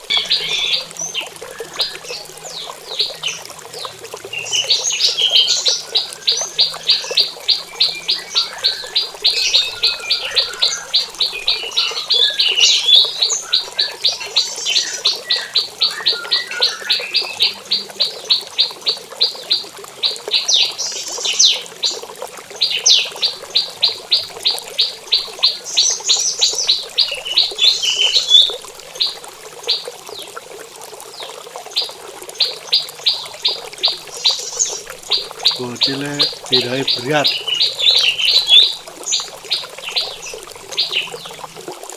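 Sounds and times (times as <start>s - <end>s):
bird twittering: 0.1s - 18.8s, 22.6s - 29.8s, 31.8s - 41.3s.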